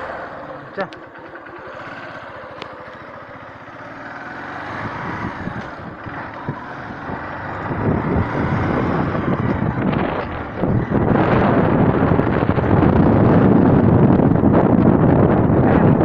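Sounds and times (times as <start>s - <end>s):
vehicle engine pulling away: 0.0s - 16.0s
wind on microphone: 4.6s - 16.0s.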